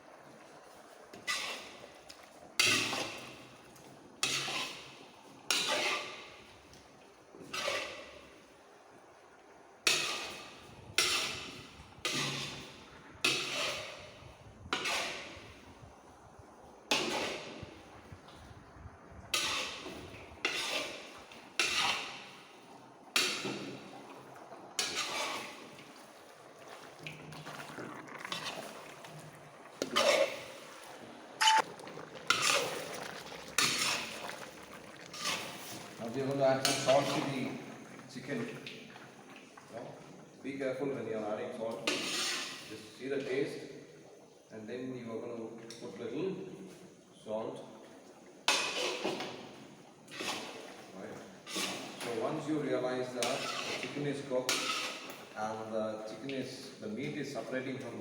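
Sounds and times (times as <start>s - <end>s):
ladle stirring and scraping pot: 0.2s - 8.6s, 9.8s - 16.0s, 16.7s - 18.4s, 19.3s - 39.4s, 41.3s - 43.3s, 48.4s - 55.6s.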